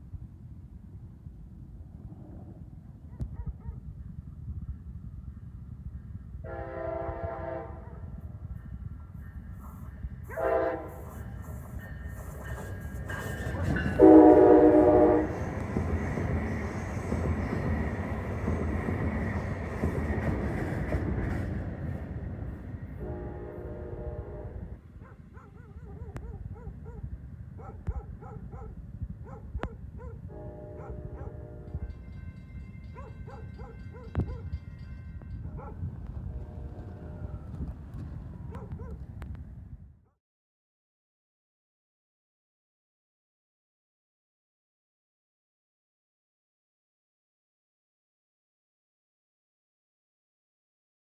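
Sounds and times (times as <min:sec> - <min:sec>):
train rumbling on tracks: 0:00.0 - 0:39.9
train horn blast: 0:06.4 - 0:07.9, 0:10.3 - 0:11.3, 0:13.8 - 0:15.6, 0:23.0 - 0:24.8, 0:30.3 - 0:32.1, 0:36.2 - 0:37.5.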